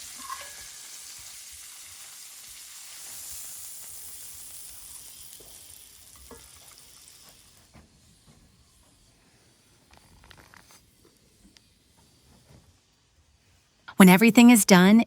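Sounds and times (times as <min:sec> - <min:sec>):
food sizzling in hot oil: 0:00.0 - 0:09.0.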